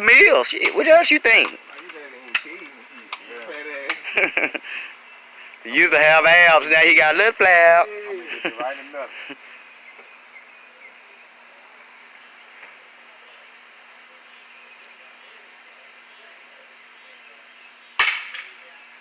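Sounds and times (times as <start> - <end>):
insects chirring: 0.0 - 19.0
bb gun shot: 18.0 - 18.5.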